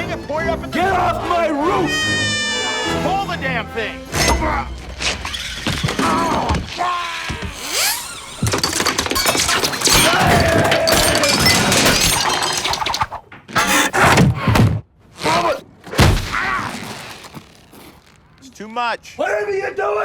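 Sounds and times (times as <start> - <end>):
man yelling: 0.0 - 3.8
things breaking and shattering: 4.1 - 14.3, 15.2 - 18.2.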